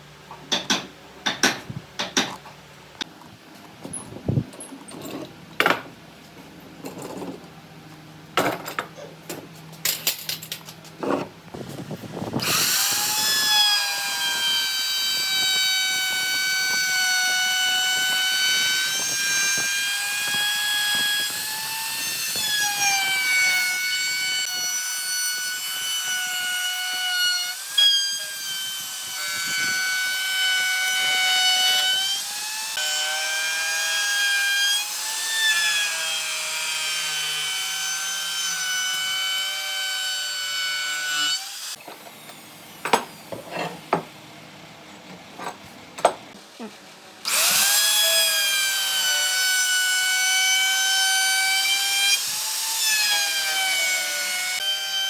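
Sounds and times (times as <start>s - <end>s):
power tool motor whining: 12.4s - 24.6s, 47.2s - 49.3s.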